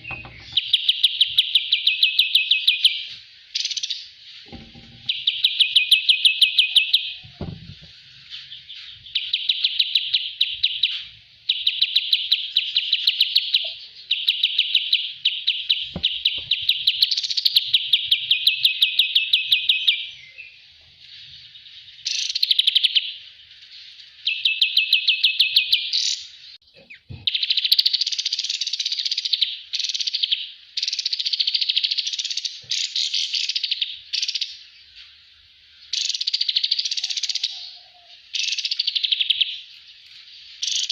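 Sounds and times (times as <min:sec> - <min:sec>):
songbird trilling: 0:00.0 - 0:07.3, 0:35.9 - 0:39.7.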